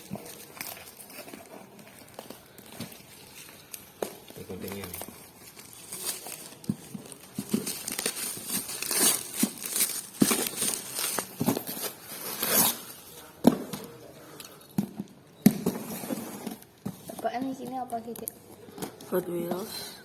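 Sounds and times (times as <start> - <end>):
packaging crinkling and tearing: 0.0 - 13.2.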